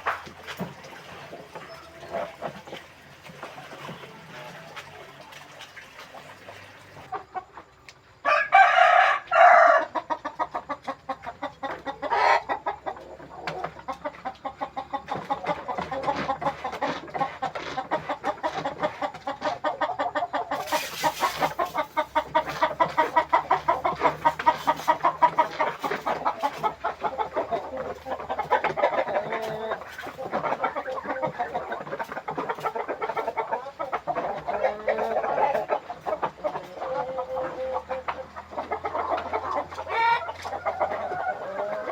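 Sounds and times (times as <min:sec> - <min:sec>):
chickens clucking: 0:00.0 - 0:41.9
rooster crowing: 0:08.2 - 0:10.0.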